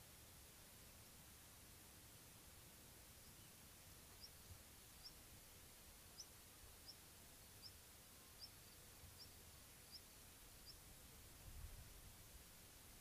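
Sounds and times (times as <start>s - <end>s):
small bird chirping: 3.1s - 5.3s, 6.0s - 11.0s.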